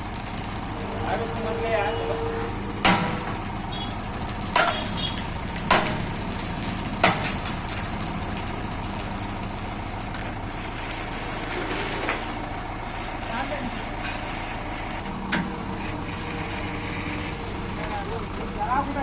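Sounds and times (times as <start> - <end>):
engine running: 0.0 - 19.0
sharp knocks: 5.7 - 6.1.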